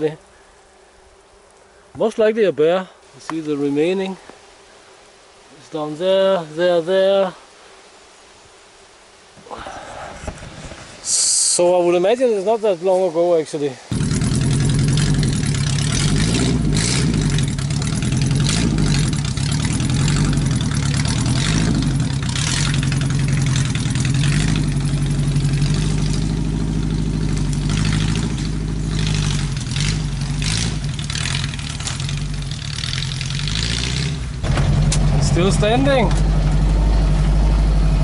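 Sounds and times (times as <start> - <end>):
off-road vehicle engine: 13.8 - 38.0.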